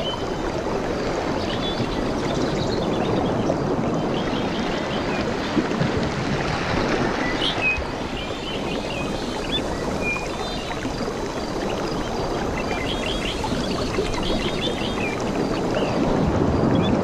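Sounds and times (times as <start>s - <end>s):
water washing: 0.0s - 17.0s.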